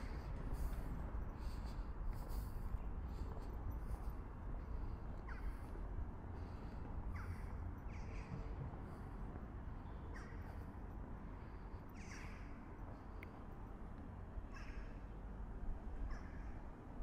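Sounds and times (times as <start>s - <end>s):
steady low rumble: 0.0s - 17.0s
crow-like bird calls: 5.2s - 5.7s, 6.4s - 8.7s, 9.9s - 10.6s, 11.9s - 12.7s, 14.4s - 15.2s, 16.0s - 16.7s.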